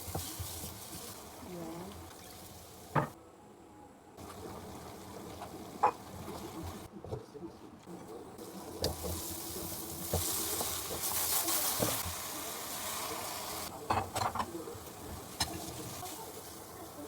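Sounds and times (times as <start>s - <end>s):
food sizzling in a pan: 0.0s - 3.2s, 4.2s - 6.9s, 8.4s - 17.0s.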